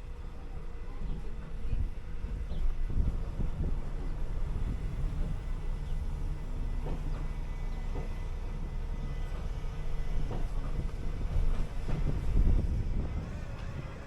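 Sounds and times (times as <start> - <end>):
bus engine droning: 0.0 - 14.0.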